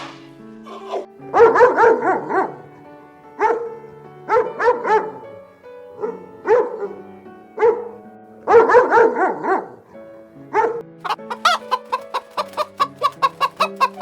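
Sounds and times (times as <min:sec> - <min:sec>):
background music: 0:00.0 - 0:14.0
dog barking: 0:00.7 - 0:02.6, 0:03.4 - 0:05.2, 0:06.0 - 0:07.0, 0:07.6 - 0:09.9, 0:10.5 - 0:14.0.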